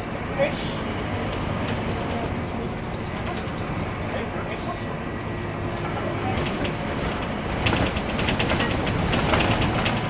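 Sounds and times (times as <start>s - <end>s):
bus diesel engine rumble: 0.0s - 10.0s
rattles and clicks: 5.6s - 10.0s.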